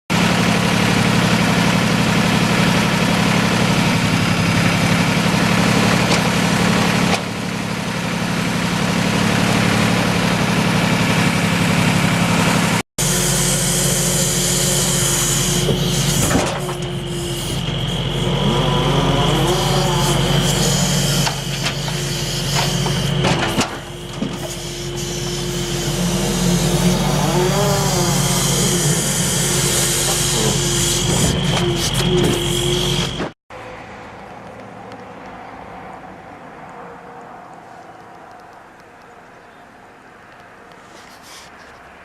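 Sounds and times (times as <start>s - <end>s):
diesel truck engine running: 0.1s - 34.9s
short rising whines: 0.4s - 33.4s.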